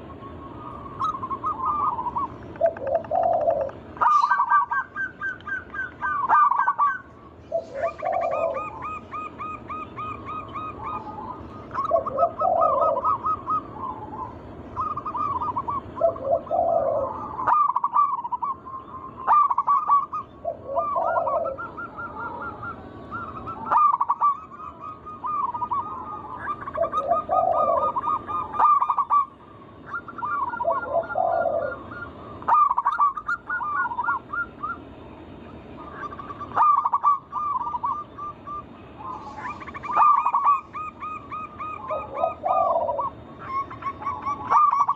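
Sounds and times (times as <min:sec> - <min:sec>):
doves cooing: 0:00.0 - 0:44.9.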